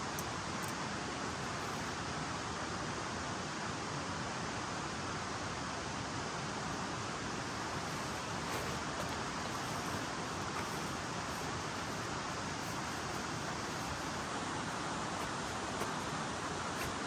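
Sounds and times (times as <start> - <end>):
river flowing: 6.6 - 17.0.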